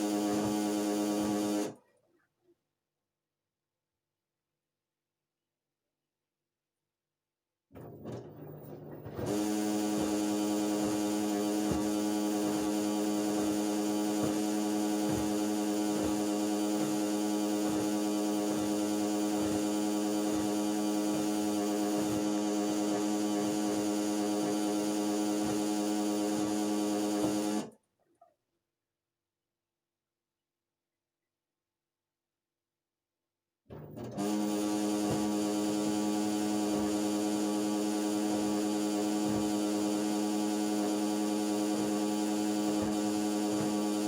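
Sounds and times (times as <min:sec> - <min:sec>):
washing machine humming loudly: 0:00.0 - 0:01.8, 0:09.2 - 0:27.7, 0:34.1 - 0:44.0.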